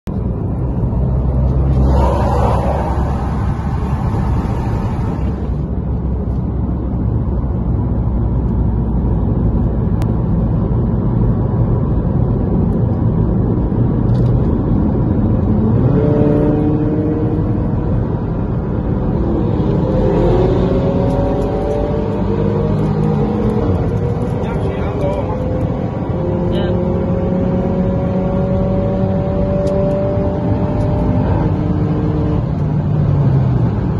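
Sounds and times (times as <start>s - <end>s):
engines and road noise drone: 0.0s - 33.9s
engines revving through gears: 15.4s - 18.0s, 18.9s - 33.9s.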